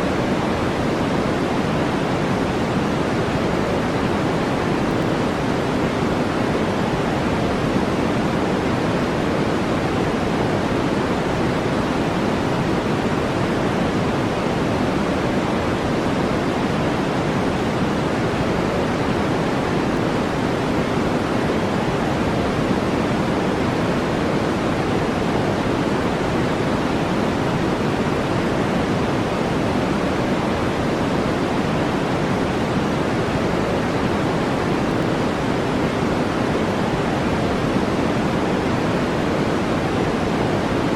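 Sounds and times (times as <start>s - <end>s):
brown noise hiss: 0.0s - 40.9s.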